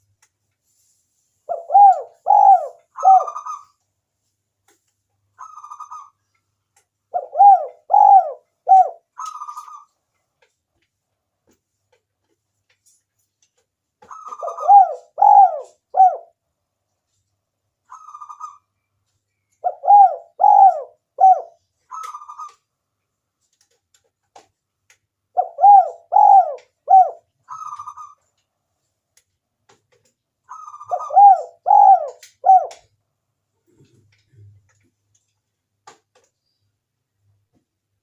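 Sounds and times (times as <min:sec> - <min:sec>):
dove cooing: 0:01.5 - 0:03.7, 0:07.1 - 0:09.9, 0:14.1 - 0:16.4, 0:19.6 - 0:22.6, 0:25.3 - 0:28.2, 0:30.5 - 0:32.9.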